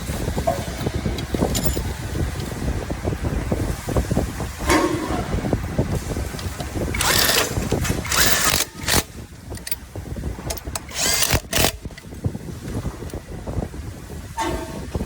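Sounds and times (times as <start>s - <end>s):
steady low rumble: 0.0s - 15.0s
harsh metal scraping and squealing: 14.4s - 15.0s.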